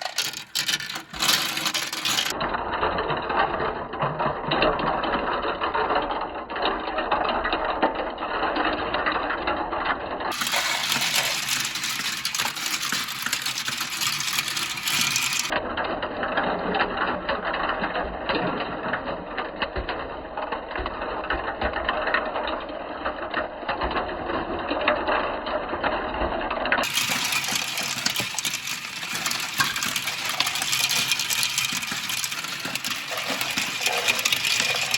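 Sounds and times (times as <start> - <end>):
marbles rattling down marble run: 0.0 - 2.4, 10.3 - 15.6, 26.8 - 34.9.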